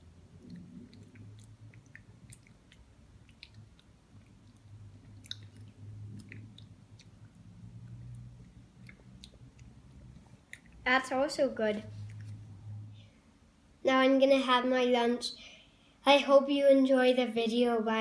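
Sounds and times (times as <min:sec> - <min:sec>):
child chewing: 0:00.0 - 0:10.9, 0:11.8 - 0:12.5
low steady hum: 0:00.0 - 0:18.0.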